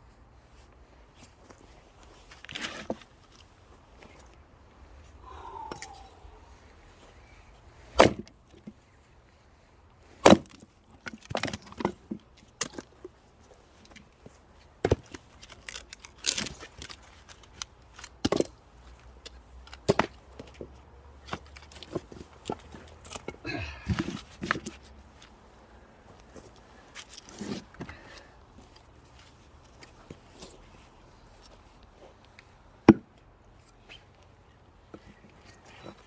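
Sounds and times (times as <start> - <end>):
firewood cracks and knocks: 10.2 - 12.9, 19.7 - 20.6.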